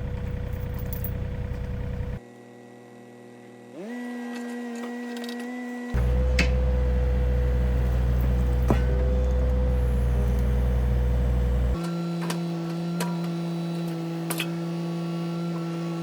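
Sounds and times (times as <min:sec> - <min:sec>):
excavator engine running: 0:00.0 - 0:02.2, 0:05.9 - 0:11.8
hydraulic whine: 0:00.0 - 0:16.0.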